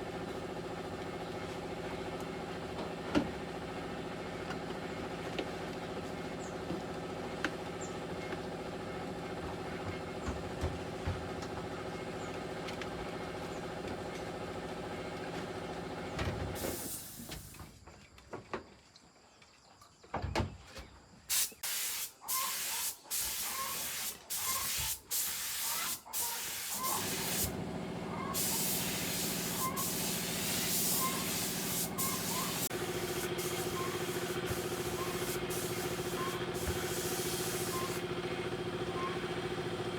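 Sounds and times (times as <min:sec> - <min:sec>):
hissing spray bursts: 0:16.6 - 0:17.6, 0:21.3 - 0:27.6, 0:28.3 - 0:38.1
machine hum: 0:26.7 - 0:39.9.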